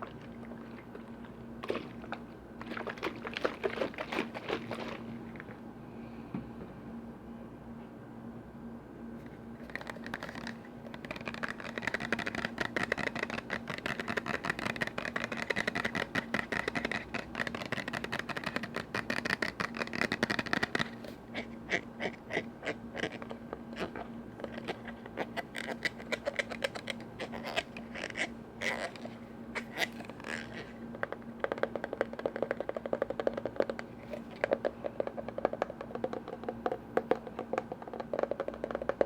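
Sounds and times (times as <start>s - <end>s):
tapping and scratching on lids: 9.6s - 20.9s, 31.5s - 39.0s.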